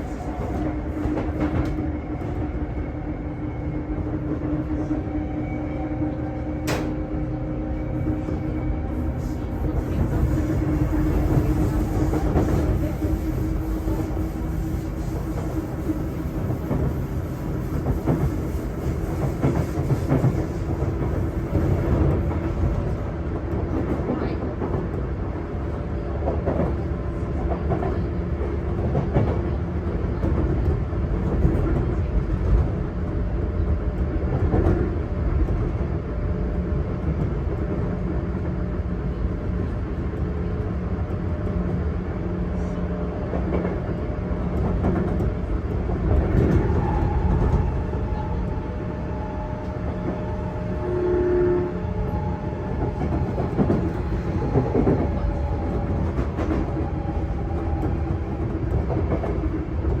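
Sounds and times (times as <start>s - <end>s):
train wheels rumbling on rail: 0.0s - 60.0s
rail-joint clicks: 6.6s - 7.1s.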